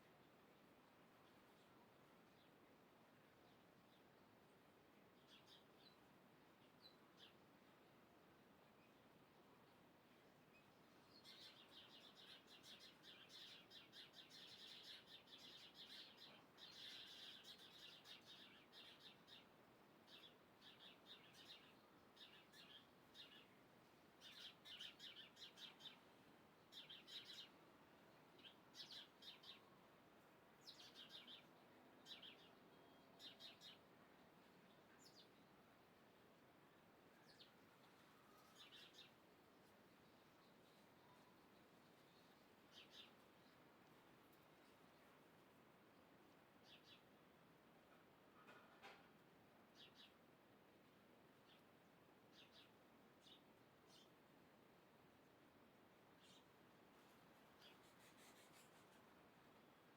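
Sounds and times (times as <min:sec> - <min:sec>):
faint birds chirping: 0:00.0 - 0:59.9.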